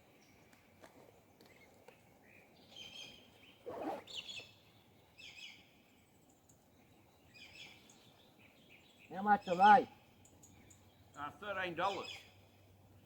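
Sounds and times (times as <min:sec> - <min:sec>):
faint outdoor background: 0:00.0 - 0:13.0
birds chirping: 0:07.4 - 0:12.5.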